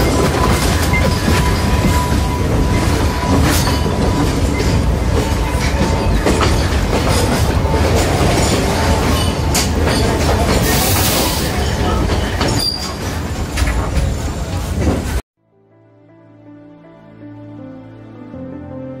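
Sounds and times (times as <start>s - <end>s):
wheels clicking over rail joints: 0.0s - 10.8s
train coach rumble: 0.0s - 15.2s.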